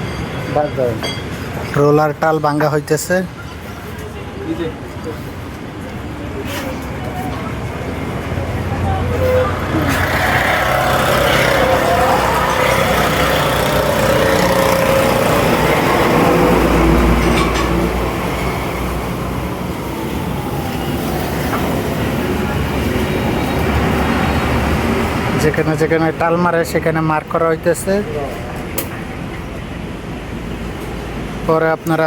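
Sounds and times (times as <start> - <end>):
workshop machinery running: 5.3 - 32.0.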